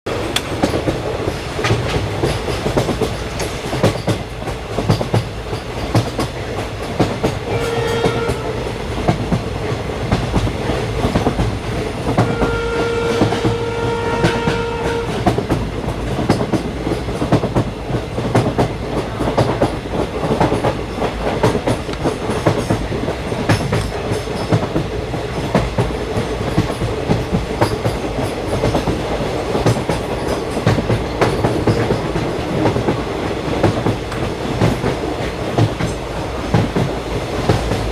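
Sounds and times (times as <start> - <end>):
train wheels clacking over rail joints: 0.1 - 37.9
train horn blasts: 7.4 - 8.7, 12.1 - 15.4.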